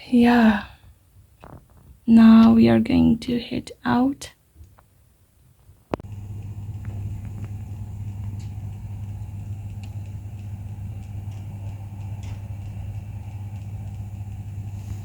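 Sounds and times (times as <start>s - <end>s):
car engine humming: 6.0s - 15.0s.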